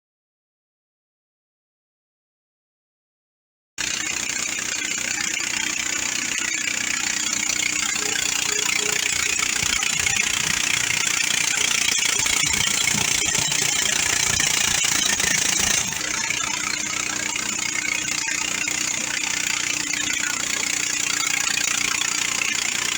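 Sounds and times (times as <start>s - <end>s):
bandsaw mill engine drone: 3.8s - 22.9s.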